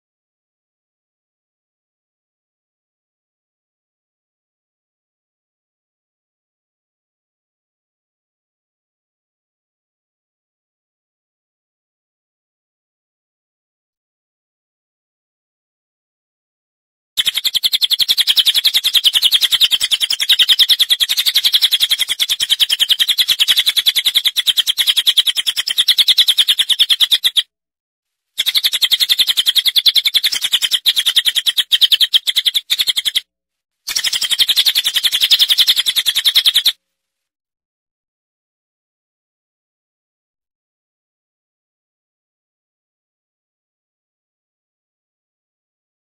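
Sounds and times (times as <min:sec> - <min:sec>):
bird chirping trill: 0:17.2 - 0:27.5, 0:28.4 - 0:33.3, 0:33.9 - 0:36.8.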